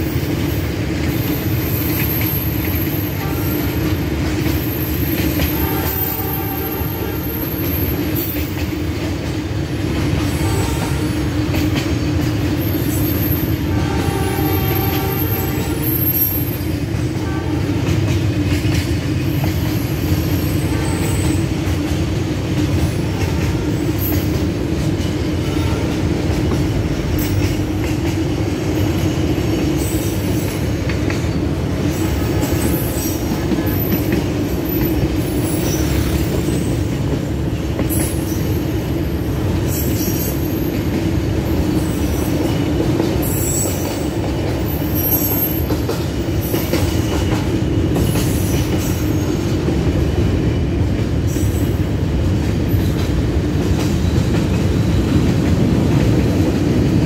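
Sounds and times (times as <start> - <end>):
train wheel squeals: 0.0 - 8.8, 10.0 - 17.0, 19.2 - 21.8, 28.7 - 55.3
freight train wheels rumbling: 0.0 - 57.0.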